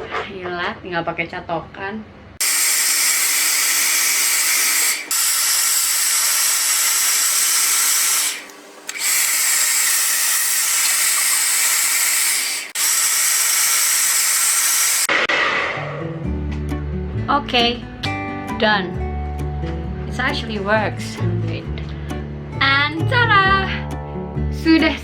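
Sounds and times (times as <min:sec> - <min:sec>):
hair dryer running on high: 0:02.4 - 0:15.1.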